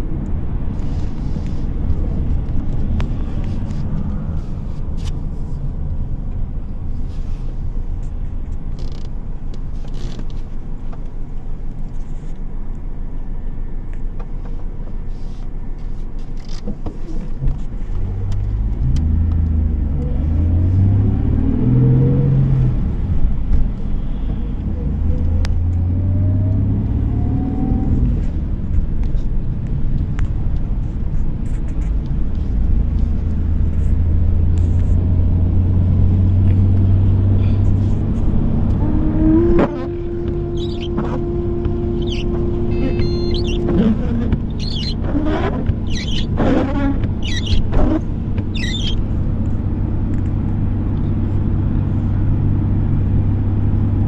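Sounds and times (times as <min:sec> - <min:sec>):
road noise: 0:00.0 - 0:54.0
car engine accelerating: 0:17.2 - 0:54.0.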